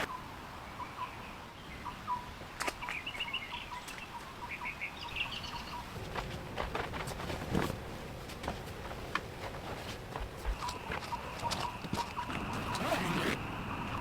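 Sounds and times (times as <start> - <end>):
small birds chirping: 0.0 - 6.0, 9.5 - 14.0.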